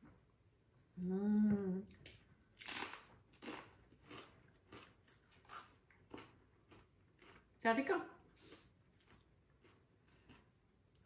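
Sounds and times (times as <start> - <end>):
person humming mmm: 0.9 - 2.0
person chewing crunchy food: 2.5 - 7.6, 8.4 - 11.0.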